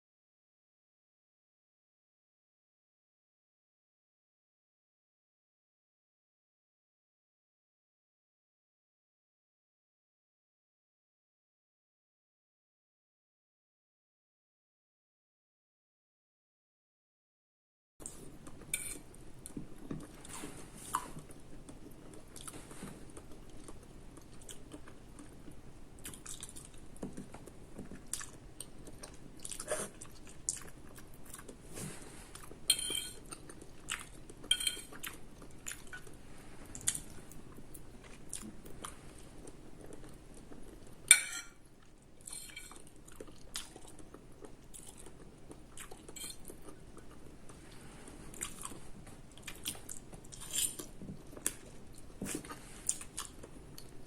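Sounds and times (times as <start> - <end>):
soft wet chewing: 18.0 - 54.0.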